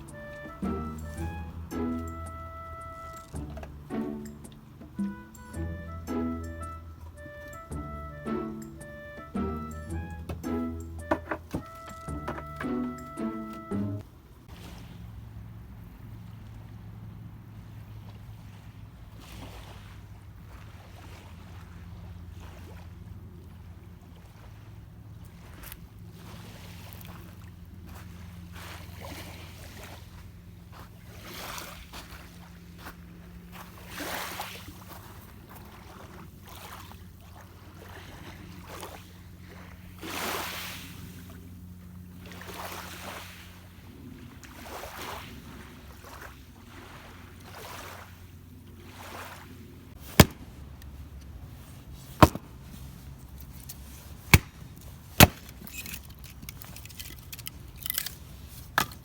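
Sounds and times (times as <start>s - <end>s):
low steady hum: 0.0s - 18.8s
axe splitting firewood: 10.3s - 11.6s, 50.0s - 50.5s, 52.1s - 52.5s, 53.6s - 59.0s
rustling and handling noise: 50.0s - 59.0s.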